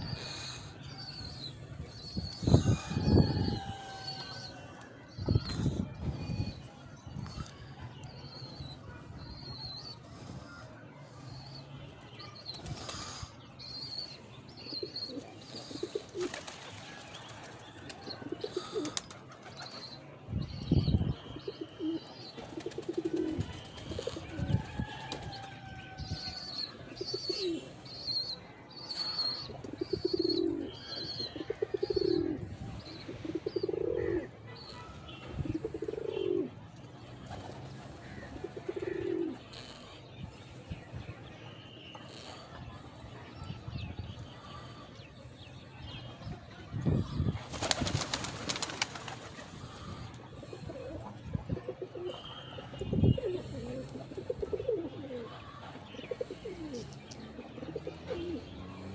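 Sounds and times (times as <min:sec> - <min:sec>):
pigeons cooing: 0:14.7 - 0:16.6, 0:18.1 - 0:19.8, 0:21.4 - 0:25.2, 0:26.9 - 0:27.8, 0:29.2 - 0:36.6, 0:37.4 - 0:40.7, 0:47.0 - 0:58.9.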